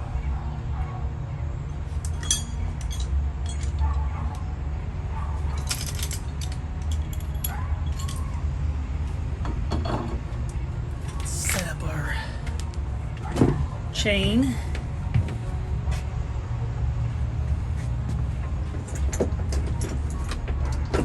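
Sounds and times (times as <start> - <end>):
steady low hum: 0.0 - 21.0
metallic clinks of tools or chain: 2.0 - 4.4, 5.5 - 8.4.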